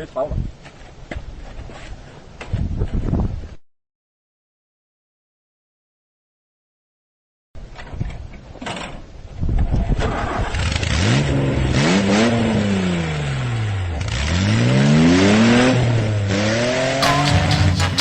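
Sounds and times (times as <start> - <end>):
engine revving: 10.6 - 18.0.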